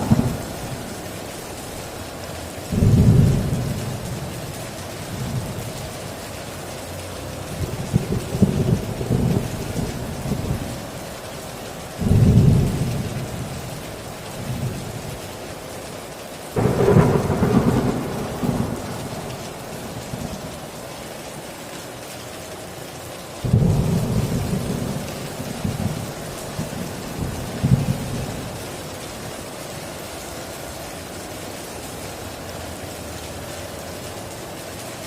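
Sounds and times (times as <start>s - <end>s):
thunder rumbling: 0.0s - 2.0s, 2.6s - 6.0s, 7.4s - 11.0s, 12.0s - 15.2s, 16.6s - 21.2s, 23.4s - 29.1s
heavy rain on a tin roof: 0.0s - 35.0s.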